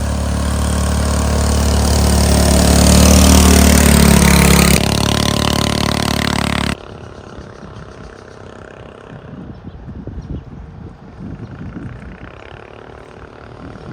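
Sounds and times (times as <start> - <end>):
truck engine running: 0.0 - 6.8.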